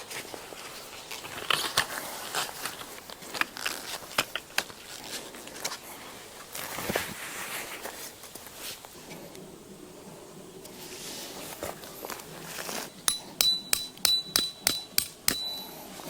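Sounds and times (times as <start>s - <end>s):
camping gear clicks and snaps: 0.0s - 5.8s
crinkly rustling: 0.0s - 9.3s, 10.8s - 13.0s.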